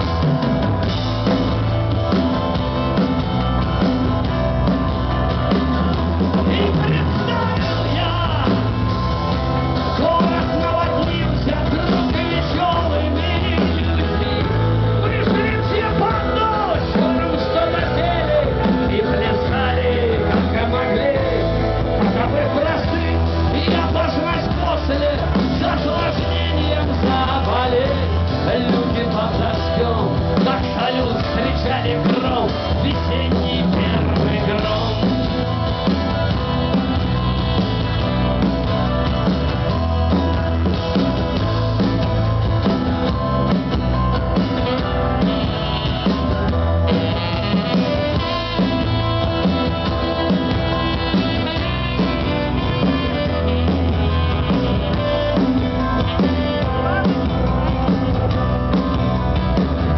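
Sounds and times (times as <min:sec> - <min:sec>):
drum kit: 0:00.0 - 0:59.9
rock band playing live: 0:00.0 - 0:59.9
steady bass line: 0:00.0 - 0:59.9.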